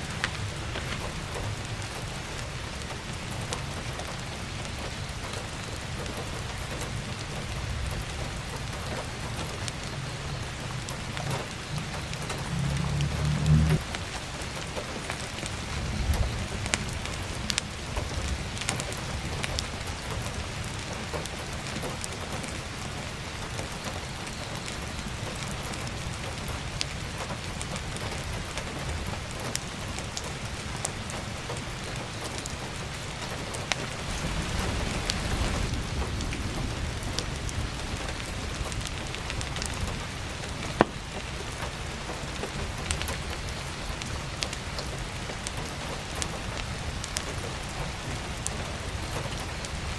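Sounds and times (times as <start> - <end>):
firewood crackling and popping: 0.0 - 49.9
heavy rain drumming on skylight: 0.0 - 49.9
low rumble: 11.5 - 14.0.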